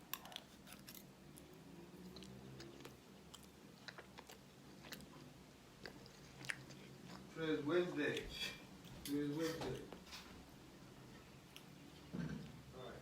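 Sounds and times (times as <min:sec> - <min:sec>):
faint chewing: 0:00.0 - 0:10.4, 0:11.0 - 0:12.6
faint low hum: 0:00.0 - 0:13.0.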